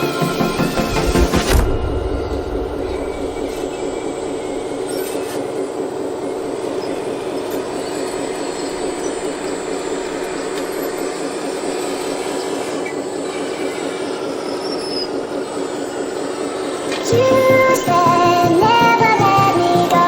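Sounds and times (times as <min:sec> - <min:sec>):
model excavator motor whirring: 0:02.4 - 0:17.8.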